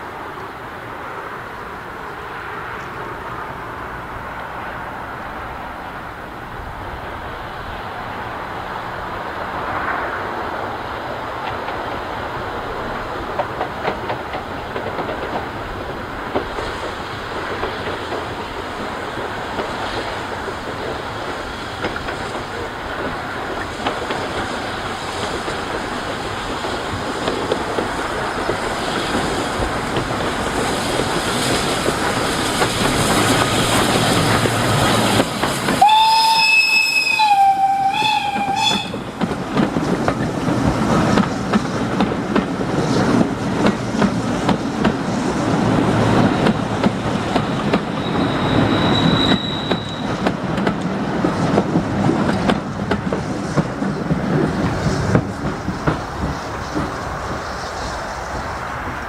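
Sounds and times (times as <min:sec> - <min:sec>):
train wheels on rails: 0:00.0 - 0:59.0
steam locomotive exhaust: 0:16.4 - 0:59.0
steam whistle: 0:35.8 - 0:39.1, 0:48.0 - 0:50.1.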